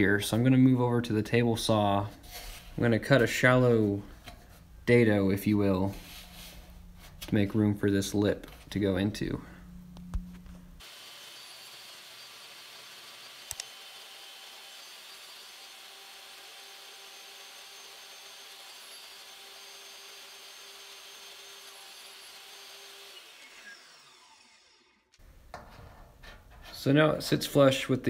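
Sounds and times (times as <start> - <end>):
saw winding down: 10.8 - 25.2
table saw whirring: 10.8 - 25.2
sharp clicks: 13.5 - 13.7.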